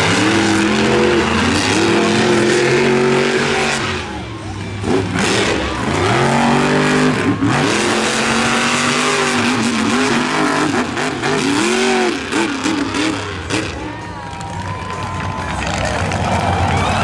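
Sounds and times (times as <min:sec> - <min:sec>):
truck engines revving hard: 0:00.0 - 0:17.0.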